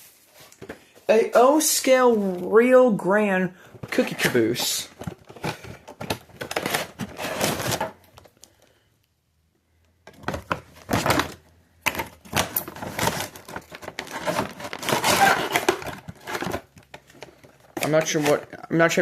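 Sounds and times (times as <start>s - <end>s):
shopping bag rustling: 12.4s - 16.6s.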